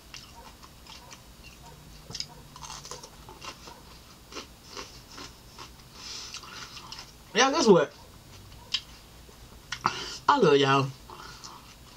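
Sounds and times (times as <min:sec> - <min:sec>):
person crunching cucumber: 0:00.1 - 0:03.7, 0:04.3 - 0:07.1.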